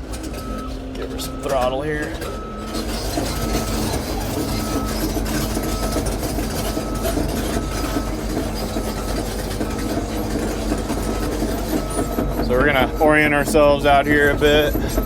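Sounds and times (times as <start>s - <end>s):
excavator diesel engine running: 0.0s - 15.0s
travel alarm beeping: 0.2s - 15.0s.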